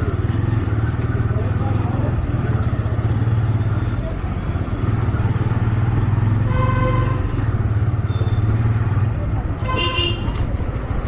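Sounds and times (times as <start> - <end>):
motorcycle engine running: 0.0 - 11.0
road noise: 0.0 - 11.0
vehicle horn honking: 6.4 - 7.3, 9.6 - 10.4.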